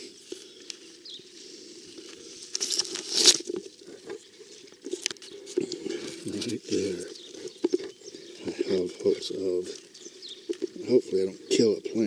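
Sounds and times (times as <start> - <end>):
hand digging in soil: 2.1 - 3.8
soil scraping: 2.1 - 7.5.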